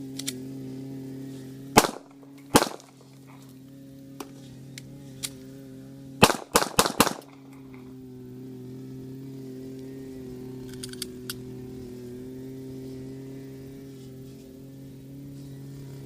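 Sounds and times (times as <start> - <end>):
steady low hum: 0.0 - 16.0
pistol shots: 1.8 - 3.0, 6.2 - 7.5.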